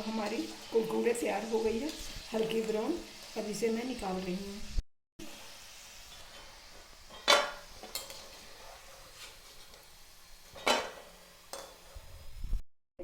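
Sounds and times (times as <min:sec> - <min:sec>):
oil sizzling: 0:00.0 - 0:12.6
metal spoon clanking against a pan: 0:07.1 - 0:08.2, 0:10.6 - 0:11.8.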